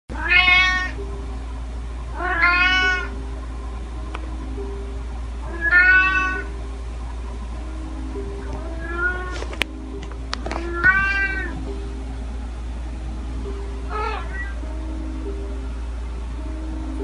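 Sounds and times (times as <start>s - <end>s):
low hum: 0.1s - 17.0s
cat meowing: 0.2s - 1.0s, 2.2s - 3.1s, 5.5s - 6.5s, 8.6s - 9.4s, 10.6s - 11.6s, 13.9s - 14.6s.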